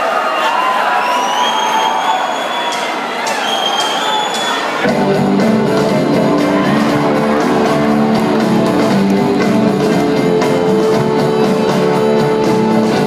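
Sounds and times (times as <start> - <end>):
rock band playing live: 4.8 - 13.0.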